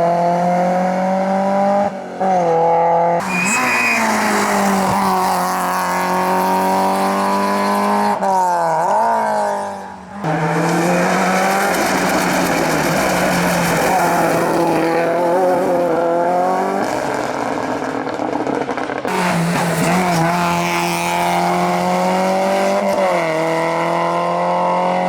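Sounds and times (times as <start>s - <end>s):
race car engines revving: 0.0s - 25.0s
tyre squeal: 3.2s - 6.2s.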